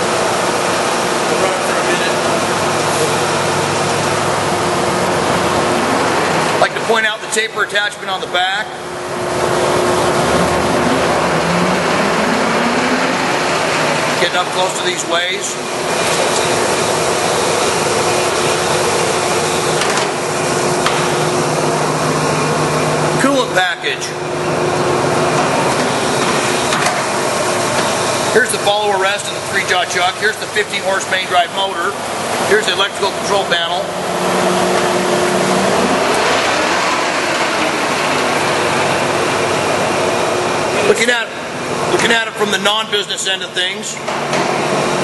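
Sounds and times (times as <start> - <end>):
lathe running: 0.0 - 43.2
low hum: 8.8 - 14.3.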